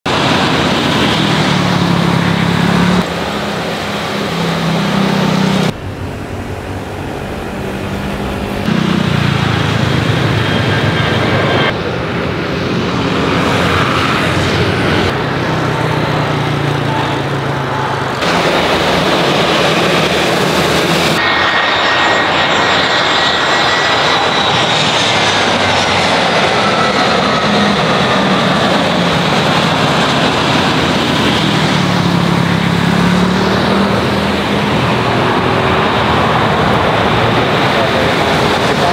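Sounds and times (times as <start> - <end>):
jet engines: 0.0 - 38.9
faint engine whine: 0.1 - 38.9.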